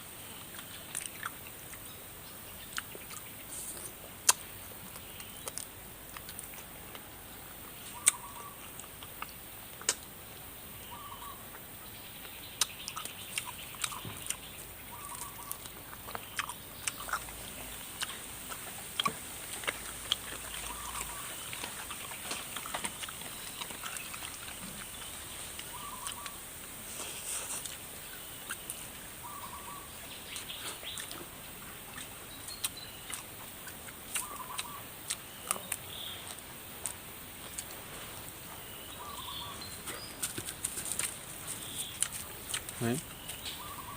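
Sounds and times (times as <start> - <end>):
crunching and sucking while eating: 0.0 - 2.0, 2.6 - 10.2, 11.4 - 43.9
steady high hiss: 0.0 - 43.9
bird calling: 7.8 - 9.3, 10.8 - 36.4, 38.5 - 43.9.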